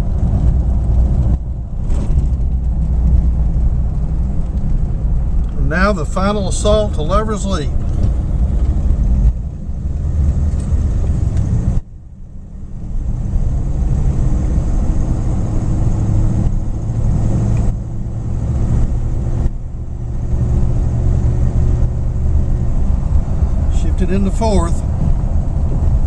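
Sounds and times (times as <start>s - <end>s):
car engine pulling uphill: 0.0s - 26.0s.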